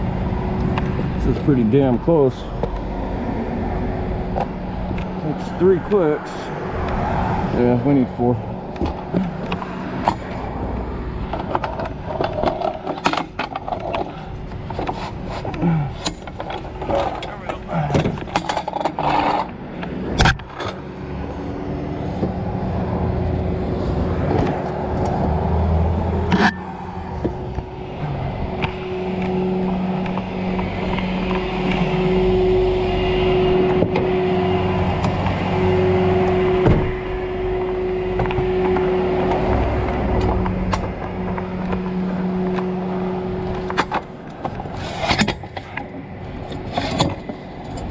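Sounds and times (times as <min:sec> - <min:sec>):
vehicle engine droning: 0:00.0 - 0:47.9
low steady rumble: 0:21.5 - 0:47.9.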